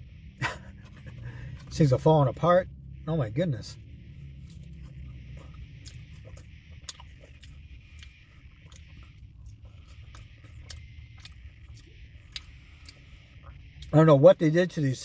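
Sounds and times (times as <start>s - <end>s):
steady low hum: 0.0s - 15.0s
soft chewing: 4.1s - 14.0s.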